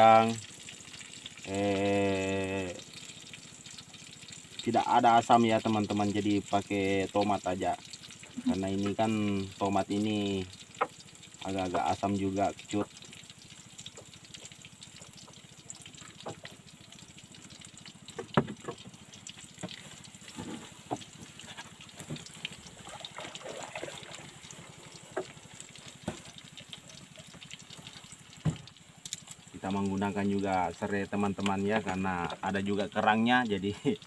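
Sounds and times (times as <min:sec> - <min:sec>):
shrimp sizzling in a wok: 0:00.0 - 0:22.6.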